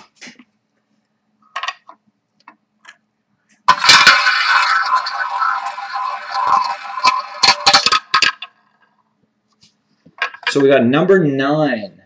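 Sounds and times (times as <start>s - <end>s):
prize wheel spinning and ticking: 3.7s - 8.5s.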